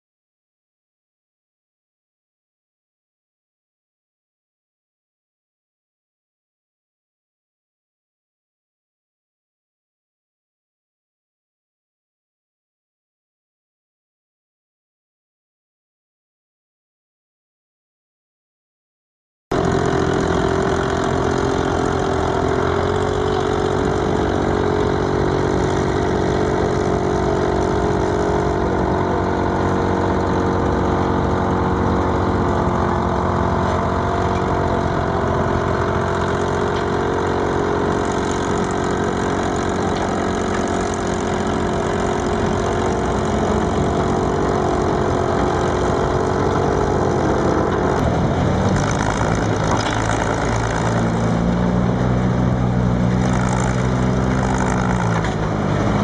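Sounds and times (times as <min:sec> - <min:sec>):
diesel engine running: 0:19.5 - 0:56.0.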